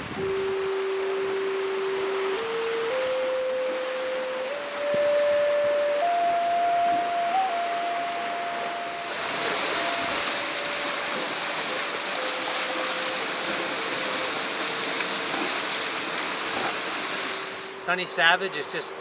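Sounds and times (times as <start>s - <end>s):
ocean surf rushing: 0.0s - 19.0s
faint held tone: 0.2s - 14.4s.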